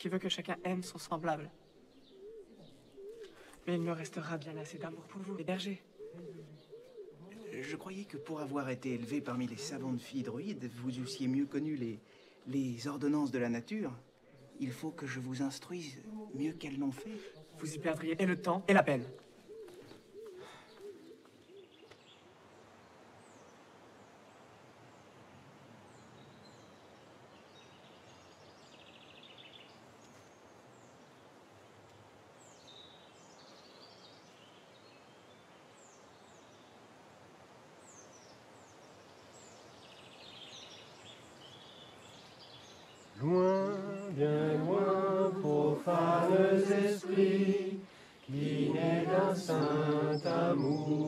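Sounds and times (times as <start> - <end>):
low hiss: 0.0 - 19.5, 20.1 - 51.0
birds singing and chirping: 0.0 - 22.2, 37.9 - 51.0.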